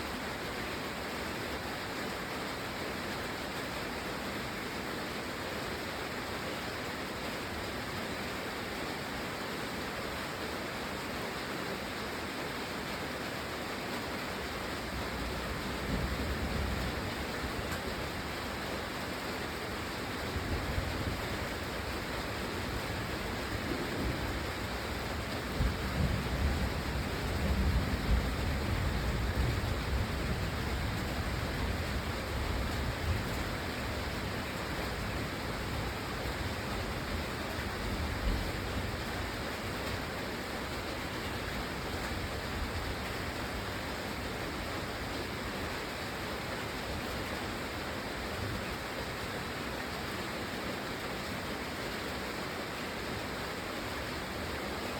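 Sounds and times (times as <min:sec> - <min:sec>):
steady rain falling: 0:00.0 - 0:54.9
low rumble of thunder: 0:15.0 - 0:17.8, 0:22.6 - 0:39.2.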